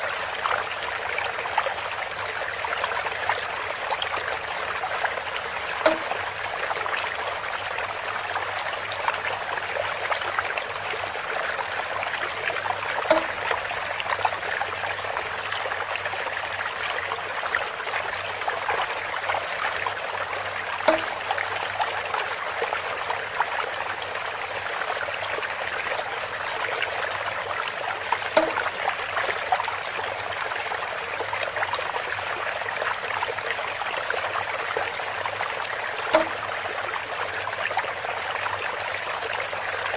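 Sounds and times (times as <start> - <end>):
water trickling through bamboo: 0.0 - 39.9
bamboo knock: 5.8 - 6.6, 13.0 - 13.6, 20.8 - 21.4, 28.3 - 28.8, 36.1 - 36.5.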